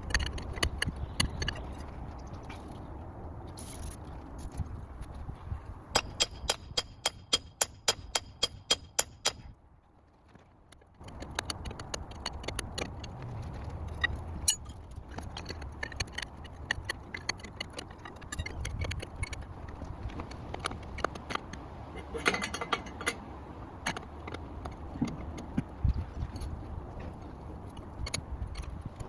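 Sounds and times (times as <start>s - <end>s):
light metallic clicks and clanks: 10.7s - 29.0s.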